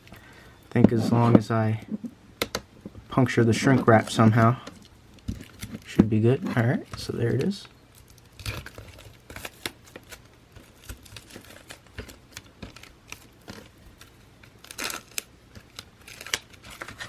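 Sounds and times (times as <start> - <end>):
plastic shrink wrap crinkling: 3.8 - 17.0.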